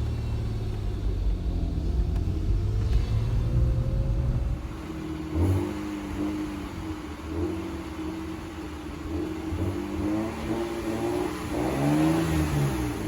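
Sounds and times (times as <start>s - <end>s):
car engine pulling under load: 0.0s - 9.6s.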